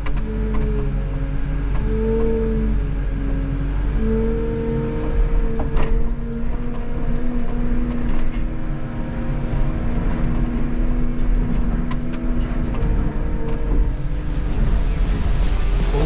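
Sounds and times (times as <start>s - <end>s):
diesel engine rumbling: 13.6s - 16.0s
steady tones: 13.7s - 16.0s.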